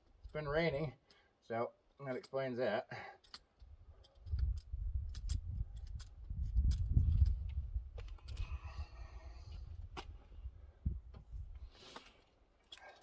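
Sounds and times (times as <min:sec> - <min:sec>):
grease gun clicks: 0:03.2 - 0:07.4.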